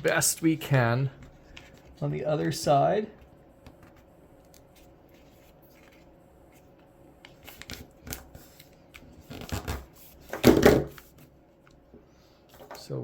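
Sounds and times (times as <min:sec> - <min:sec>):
paper rustling and crinkling: 0:04.5 - 0:06.7.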